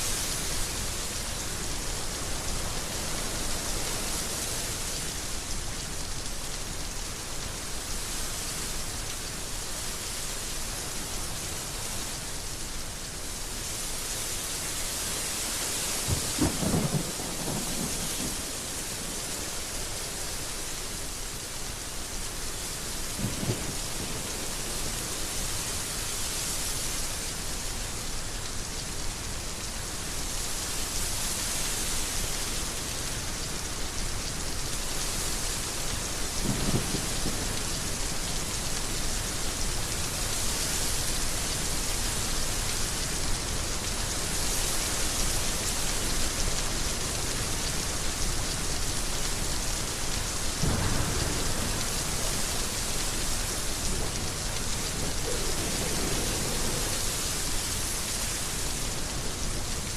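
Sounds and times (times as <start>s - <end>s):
heavy rain falling: 0.0s - 59.9s
low rumbles of thunder: 16.0s - 19.6s, 23.1s - 24.7s, 36.4s - 38.0s, 50.5s - 58.0s.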